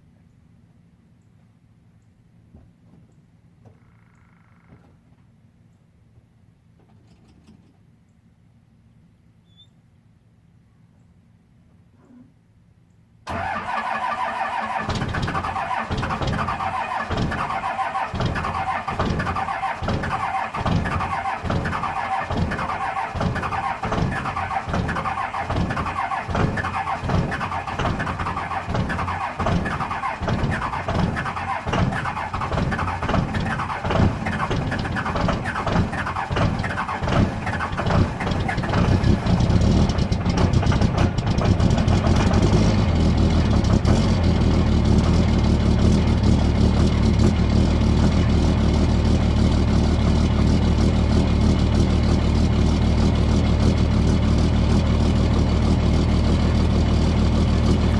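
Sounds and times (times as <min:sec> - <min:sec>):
truck starter whirring: 0:13.3 - 0:48.4
engine firing roughly: 0:13.3 - 0:57.9.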